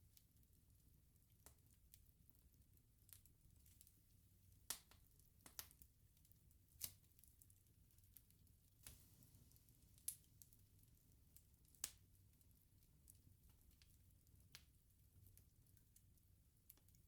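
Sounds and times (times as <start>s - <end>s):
burning logs popping and snapping: 4.6s - 17.0s.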